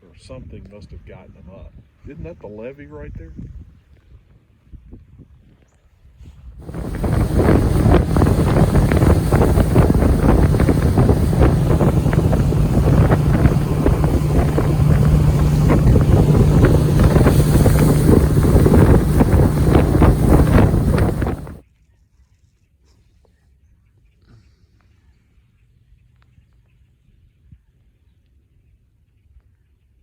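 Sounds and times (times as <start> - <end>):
outboard motor running: 6.6 - 21.6
wind buffeting microphone: 6.6 - 21.6.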